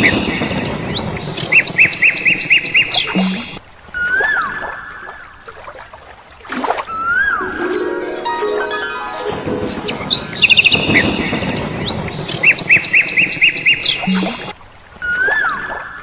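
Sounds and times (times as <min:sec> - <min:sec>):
birds chirping: 0:00.0 - 0:03.6, 0:08.6 - 0:14.5
soft background music: 0:07.4 - 0:14.2.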